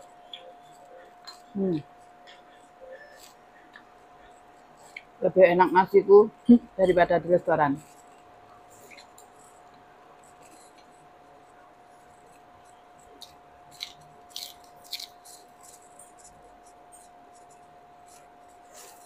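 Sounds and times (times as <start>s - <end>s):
faint steady hum: 0.0s - 19.0s
lettuce crunching while chewing: 12.2s - 19.0s.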